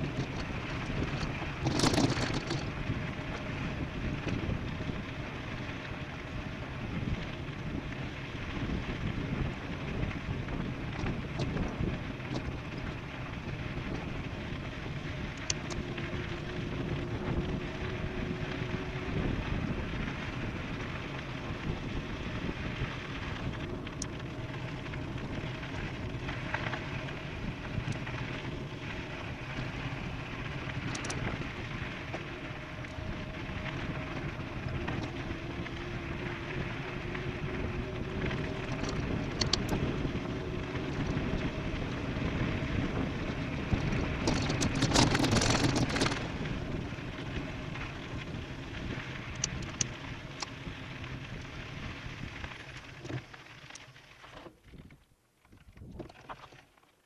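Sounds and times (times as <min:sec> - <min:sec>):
light clicks and rattles: 0:00.0 - 0:03.5, 0:30.8 - 0:31.4, 0:38.5 - 0:39.9, 0:43.8 - 0:46.4
wind rushing over microphone: 0:00.0 - 0:53.2
bike tyre noise: 0:00.0 - 0:56.9.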